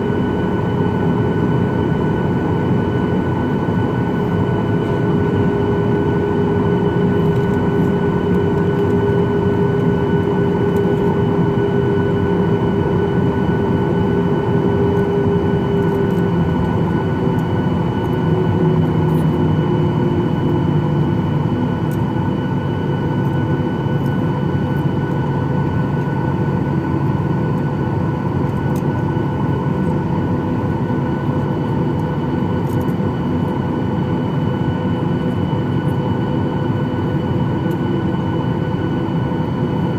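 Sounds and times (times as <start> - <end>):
jet engine noise in cabin: 0.0 - 39.9.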